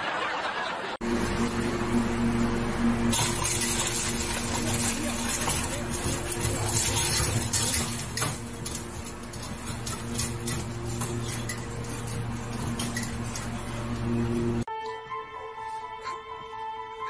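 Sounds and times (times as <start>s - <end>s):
steady low hum: 1.0s - 14.7s
metal bowl and cage clinking: 3.1s - 14.7s.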